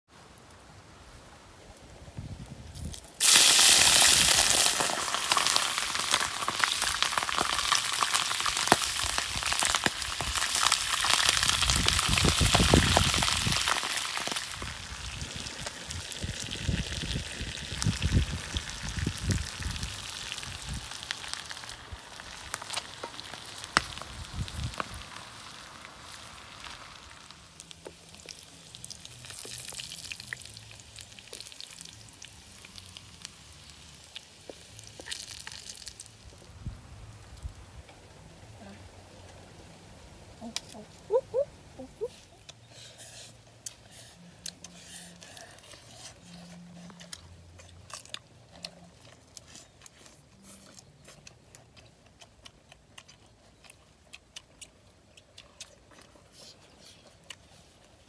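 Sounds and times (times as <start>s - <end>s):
food sizzling in hot oil: 2.8s - 36.4s.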